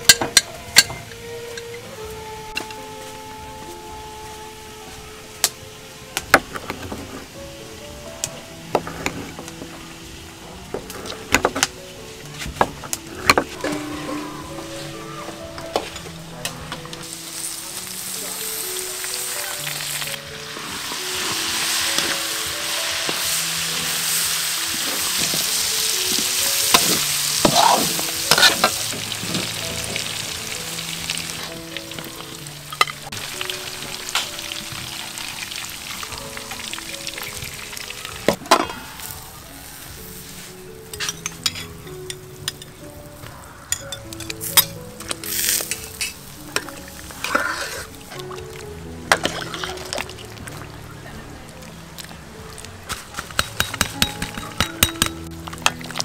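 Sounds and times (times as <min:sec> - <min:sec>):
meat sizzling in a wok: 0:17.0 - 0:40.9, 0:45.2 - 0:48.2
metal ladle scraping a wok: 0:26.7 - 0:29.6, 0:47.1 - 0:48.0, 0:49.1 - 0:50.0.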